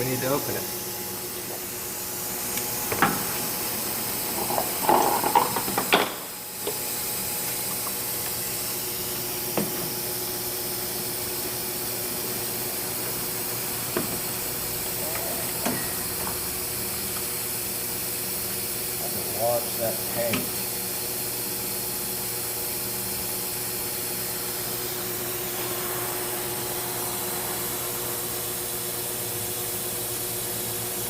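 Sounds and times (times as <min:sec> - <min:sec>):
faint hum: 0:23.5 - 0:30.6
steady hiss: 0:23.6 - 0:29.8.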